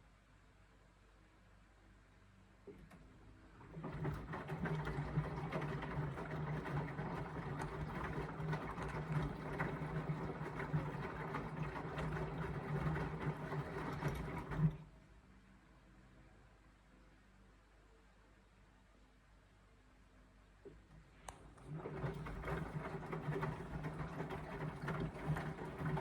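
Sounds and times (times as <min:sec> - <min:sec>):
washing machine motor hum: 0:02.7 - 0:15.0, 0:21.3 - 0:26.0
knocks of tumbling laundry: 0:03.5 - 0:14.9, 0:21.5 - 0:26.0.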